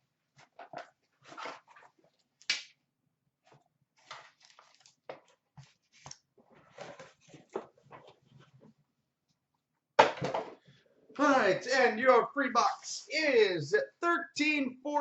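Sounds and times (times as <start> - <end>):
packaging rustling and crinkling: 4.0 - 8.2.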